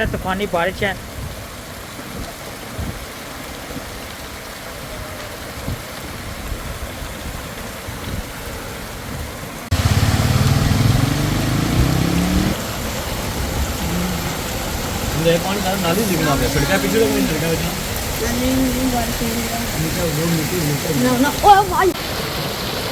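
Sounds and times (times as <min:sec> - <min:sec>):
heavy rain falling: 0:00.0 - 0:22.9
running water: 0:00.0 - 0:22.9
vehicle engine revving: 0:09.7 - 0:16.2.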